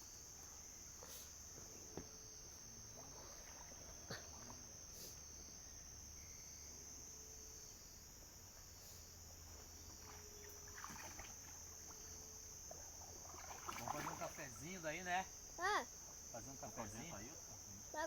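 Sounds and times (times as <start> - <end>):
crickets droning: 0.0 - 18.0
faint low hum: 0.0 - 18.0.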